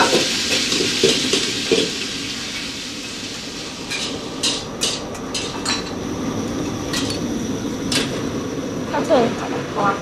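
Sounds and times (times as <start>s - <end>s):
steady background hum: 1.1s - 10.0s
metal utensils clanking: 3.9s - 6.0s, 6.9s - 7.3s.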